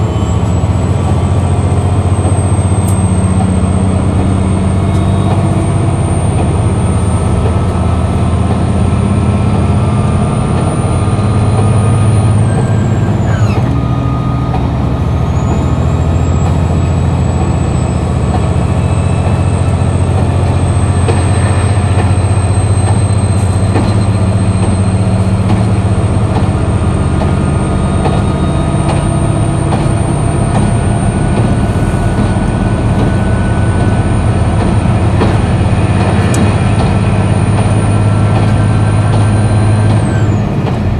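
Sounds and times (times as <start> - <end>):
railcar engine low drone: 0.0 - 40.9.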